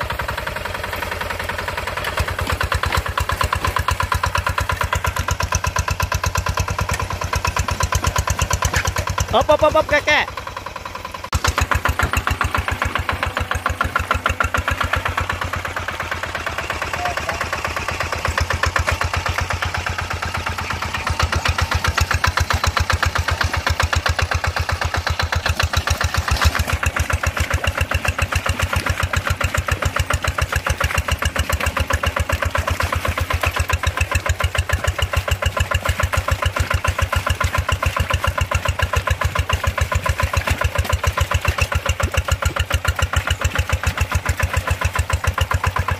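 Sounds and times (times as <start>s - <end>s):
tractor diesel engine chugging: 0.0s - 45.9s.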